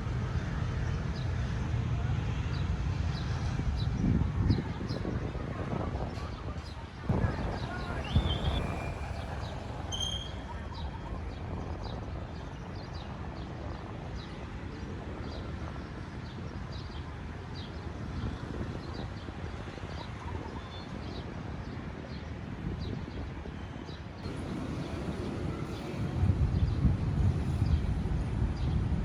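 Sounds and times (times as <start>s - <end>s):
low traffic rumble: 0.0s - 29.0s.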